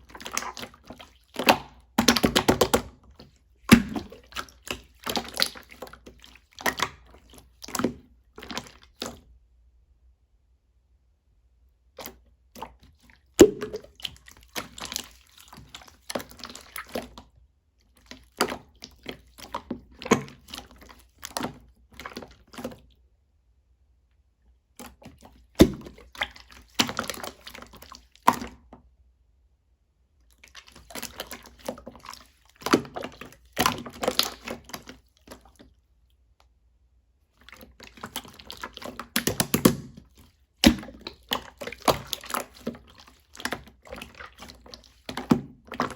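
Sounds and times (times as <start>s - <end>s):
slime squished by hand: 0.0s - 9.3s, 11.9s - 17.2s, 24.8s - 28.7s, 30.4s - 35.7s, 37.4s - 45.9s
wet clicking and popping: 0.1s - 2.9s, 37.8s - 45.9s.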